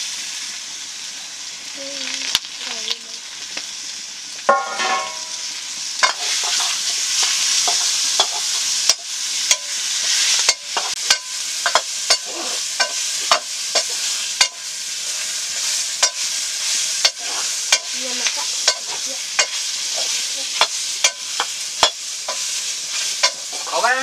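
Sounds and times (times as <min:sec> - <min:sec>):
greens sizzling in a pan: 0:00.0 - 0:24.0
utensil knocking and scraping pan: 0:04.5 - 0:05.3.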